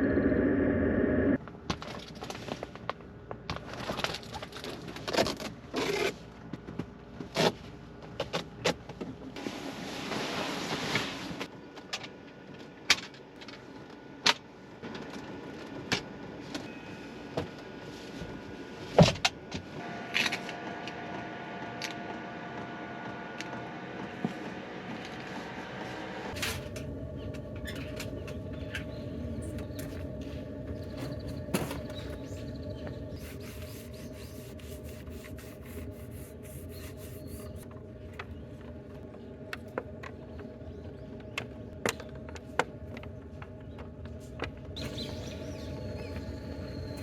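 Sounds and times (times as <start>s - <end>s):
steady hum: 0.0s - 1.4s, 26.3s - 47.0s
low hum: 0.0s - 1.6s, 19.8s - 47.0s.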